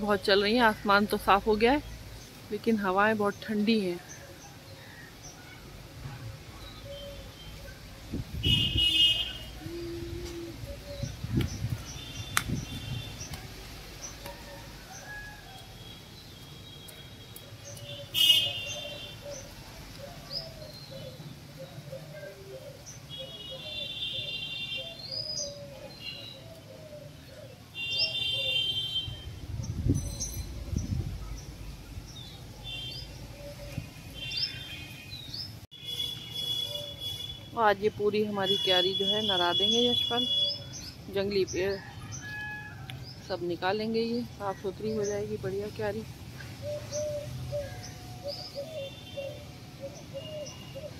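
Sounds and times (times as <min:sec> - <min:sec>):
garden birds chirping: 0:00.0 - 0:50.9
wind rumble on microphone: 0:08.1 - 0:13.4, 0:29.1 - 0:32.4.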